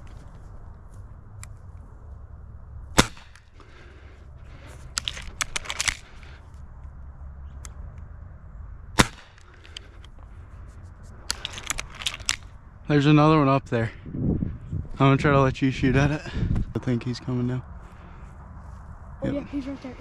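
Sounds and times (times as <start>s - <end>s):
airgun shots: 2.9s - 3.6s, 8.9s - 10.0s.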